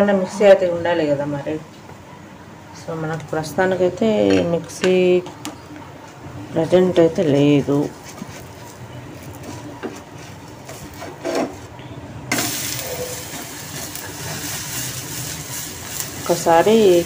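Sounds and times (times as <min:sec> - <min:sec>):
food sizzling on a hot pan: 0:12.3 - 0:17.0.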